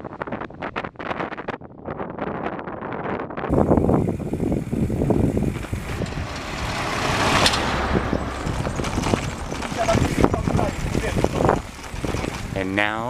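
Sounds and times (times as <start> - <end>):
road vehicle passing: 3.5 - 12.8.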